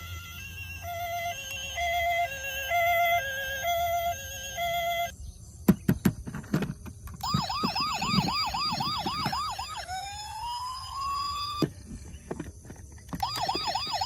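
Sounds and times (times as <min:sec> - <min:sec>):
toy electronic siren: 0:00.0 - 0:05.1, 0:07.2 - 0:12.0, 0:13.1 - 0:14.0.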